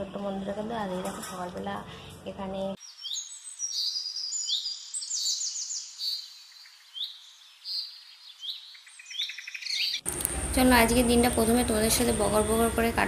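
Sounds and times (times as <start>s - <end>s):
small birds chirping: 2.7s - 10.3s.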